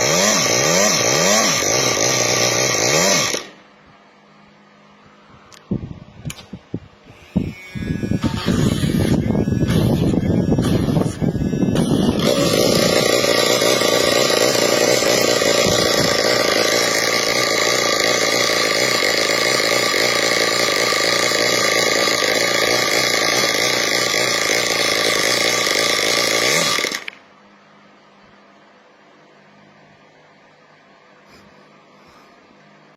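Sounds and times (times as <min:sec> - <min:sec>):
single-cylinder engine running: 0:00.0 - 0:03.6, 0:07.8 - 0:27.2.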